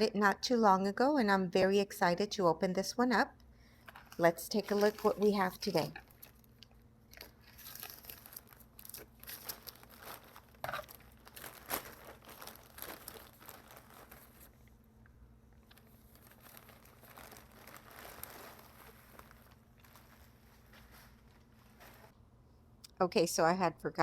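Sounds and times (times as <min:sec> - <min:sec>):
packaging crinkling and tearing: 0:03.9 - 0:14.6, 0:15.6 - 0:22.1.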